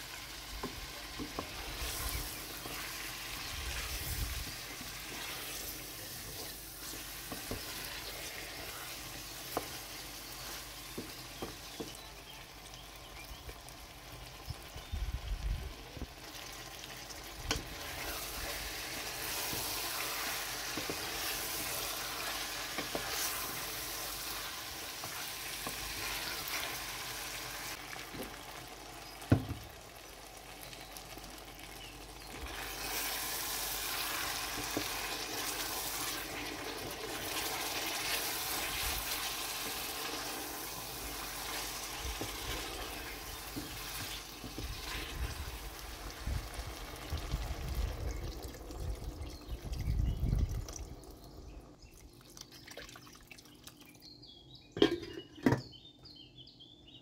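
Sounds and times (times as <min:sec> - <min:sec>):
chicken sizzling in oil: 0:00.0 - 0:51.4.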